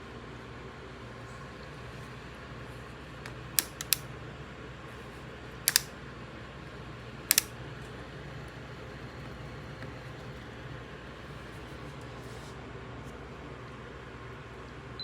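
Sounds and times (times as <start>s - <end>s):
sharp clicks: 3.6s - 4.0s, 5.7s - 5.9s, 7.3s - 7.5s.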